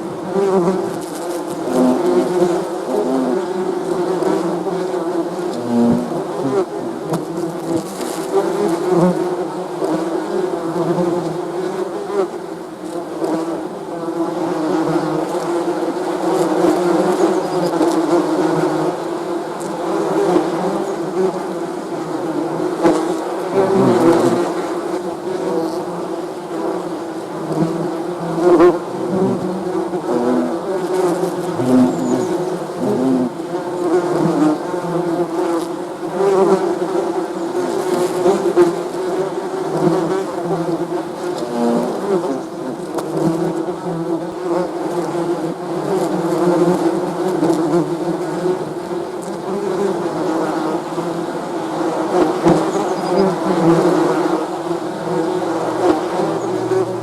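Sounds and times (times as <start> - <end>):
bees buzzing: 19.8 - 48.7, 49.5 - 57.0.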